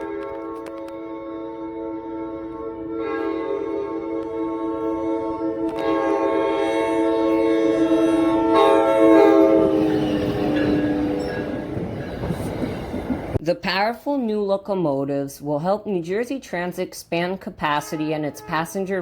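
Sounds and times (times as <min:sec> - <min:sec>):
train horn blast: 0:00.0 - 0:12.5, 0:17.6 - 0:19.0
train rumble: 0:00.0 - 0:13.4.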